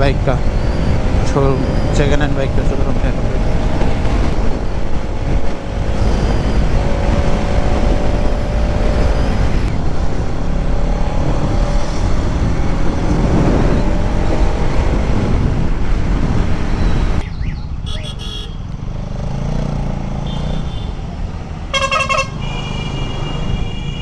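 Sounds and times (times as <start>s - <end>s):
wind noise on microphone: 0.0s - 18.7s
motorcycle engine cruising: 0.0s - 24.0s.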